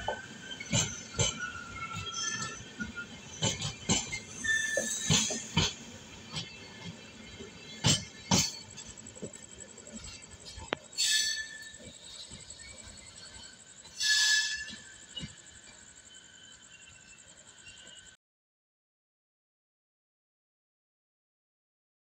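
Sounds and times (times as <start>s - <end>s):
train wheels clacking: 0.0s - 16.0s
train rattling: 0.0s - 18.1s.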